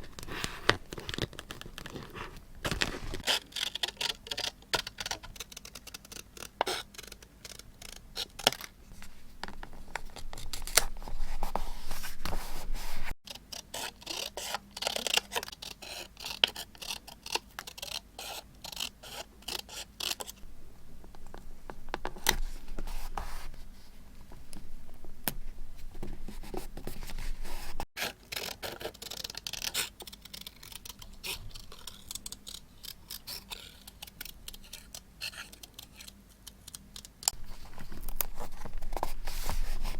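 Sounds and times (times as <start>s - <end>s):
paper scraping and rustling: 0.0s - 3.5s, 8.9s - 13.2s, 37.3s - 39.9s.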